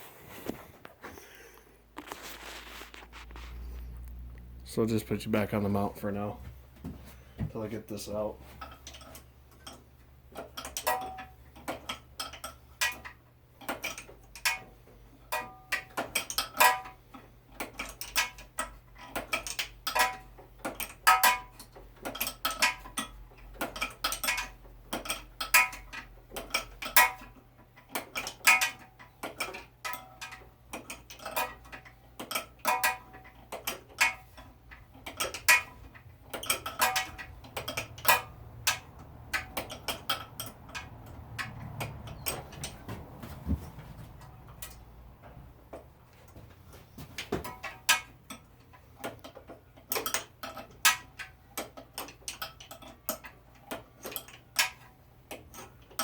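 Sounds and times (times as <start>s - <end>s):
metal tools clinking on engine: 7.9s - 42.9s, 47.4s - 56.0s.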